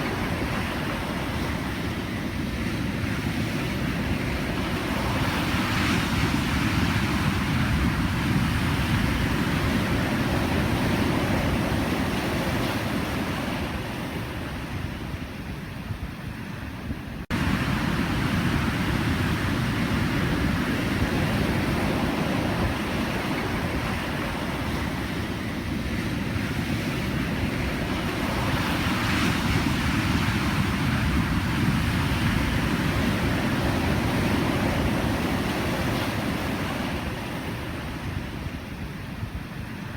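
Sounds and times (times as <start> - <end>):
waves breaking: 17.3 - 39.9.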